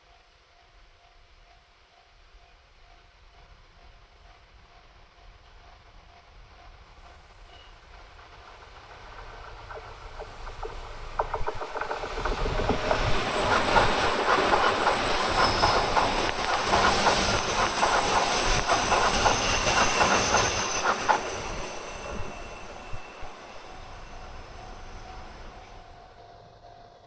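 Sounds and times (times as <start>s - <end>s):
train wheels clattering over rails: 6.2s - 26.0s
thin high tone: 10.2s - 26.4s.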